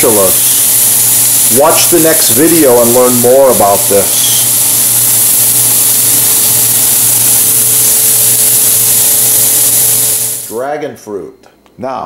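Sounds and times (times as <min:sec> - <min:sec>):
vegetables sizzling in a skillet: 0:00.0 - 0:10.6.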